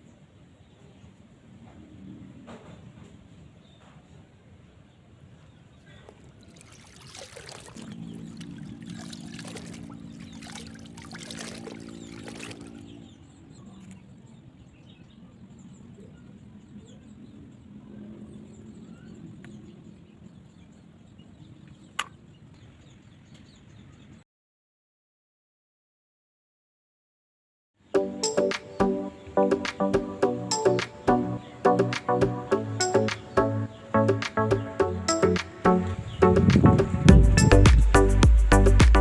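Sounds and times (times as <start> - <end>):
water pouring and trickling: 6.1 - 13.0.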